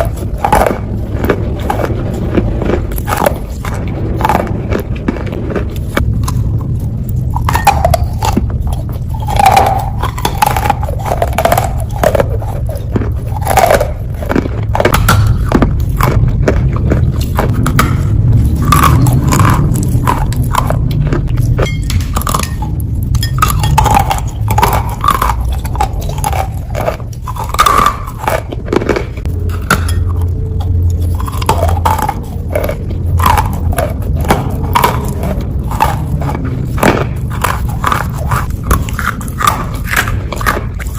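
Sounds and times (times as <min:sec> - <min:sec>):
low steady rumble: 0:00.0 - 0:40.9
person chewing wet clay: 0:00.0 - 0:40.9.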